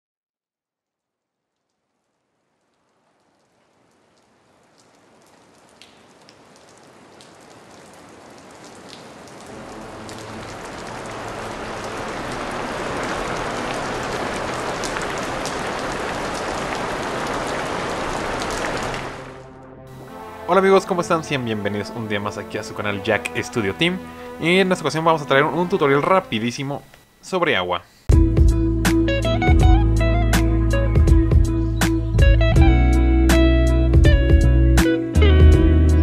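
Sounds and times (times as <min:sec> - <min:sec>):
single raindrops ticking: 0:01.0 - 0:19.3
heavy rain downpour: 0:01.6 - 0:25.7.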